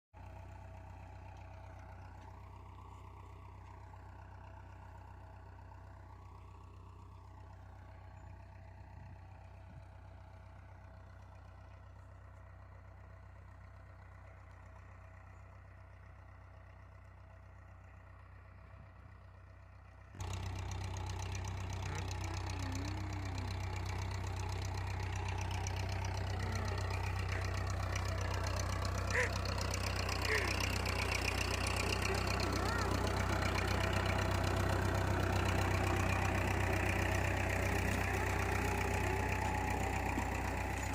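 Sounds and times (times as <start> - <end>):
close engine running: 0.2 - 40.9
tractor engine running: 0.2 - 40.9.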